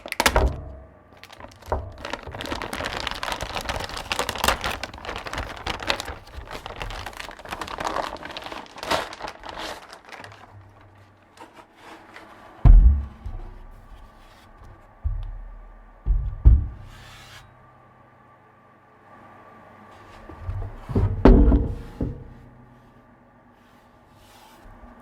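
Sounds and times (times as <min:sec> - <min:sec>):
plastic wrapping crinkling: 0:00.0 - 0:12.2
loud thump: 0:12.6 - 0:14.0, 0:15.0 - 0:17.0.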